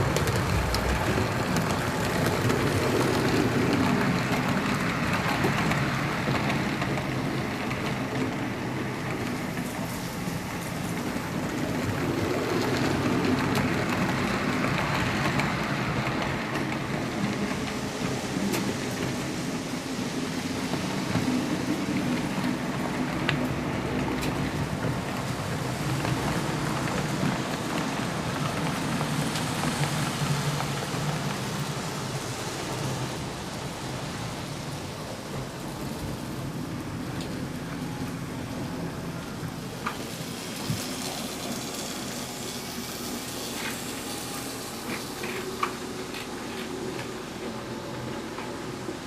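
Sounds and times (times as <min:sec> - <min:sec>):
low motor hum: 0:00.0 - 0:03.9
model train running on track: 0:00.0 - 0:49.0.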